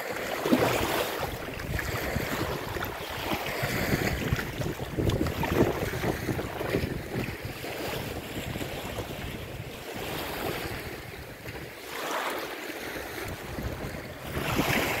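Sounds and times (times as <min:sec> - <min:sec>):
lake water washing: 0:00.0 - 0:15.0
wind buffeting microphone: 0:00.6 - 0:11.8, 0:12.8 - 0:15.0.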